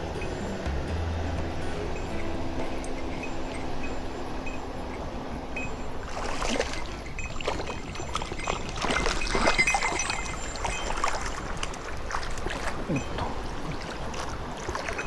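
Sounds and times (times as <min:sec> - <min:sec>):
stream water running: 0:00.0 - 0:15.0
splashing in water: 0:01.4 - 0:15.0.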